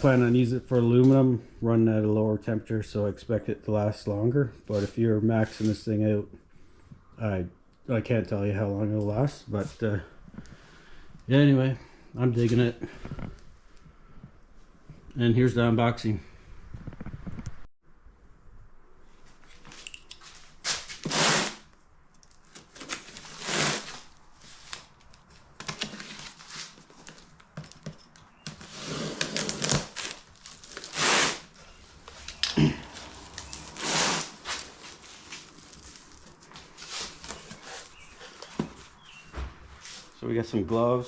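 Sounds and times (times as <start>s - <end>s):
packaging rustling and crinkling: 22.3s - 39.2s.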